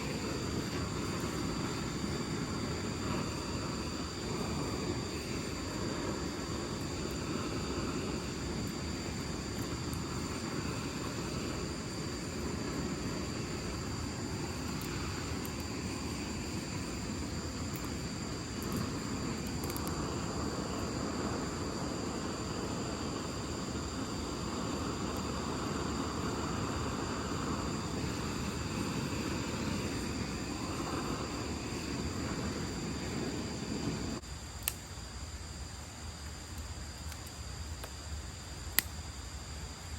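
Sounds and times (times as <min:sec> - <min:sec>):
high-pitched insect drone: 0:00.0 - 0:35.7.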